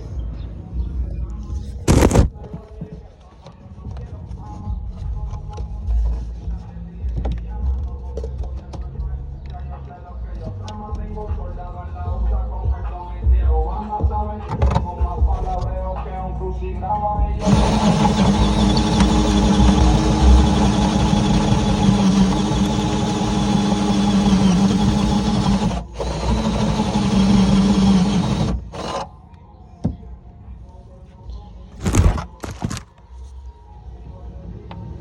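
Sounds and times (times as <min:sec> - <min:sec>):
power drill running under load: 0:17.4 - 0:29.1, 0:31.8 - 0:32.9.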